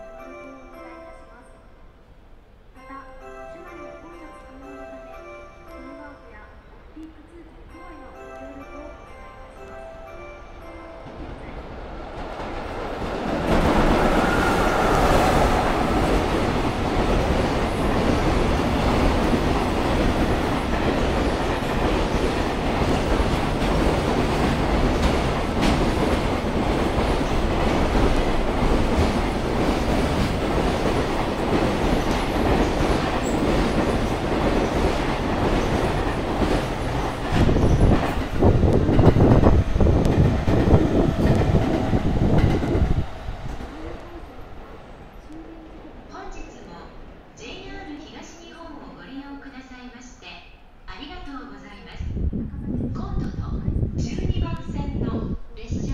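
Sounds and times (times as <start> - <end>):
freight train passing: 0.0 - 55.9
locomotive whine: 11.0 - 18.8.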